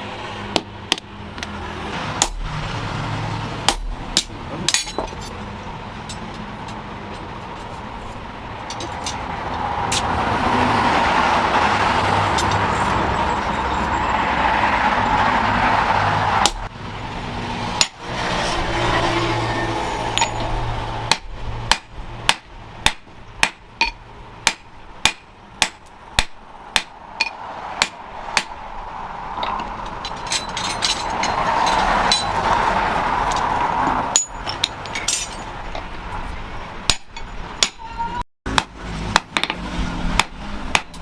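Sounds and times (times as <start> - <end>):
hammer striking hot metal: 2.2 - 2.6, 3.7 - 5.1, 16.4 - 16.7, 17.8 - 18.0, 20.2 - 28.6, 36.9 - 37.9, 40.2 - 41.0.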